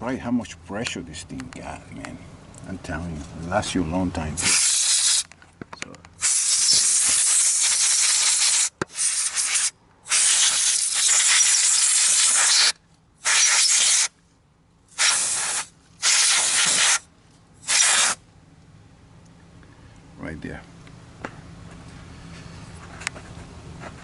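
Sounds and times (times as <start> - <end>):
compressed air hissing blasts: 4.4 - 5.3, 6.2 - 14.1, 14.9 - 18.2.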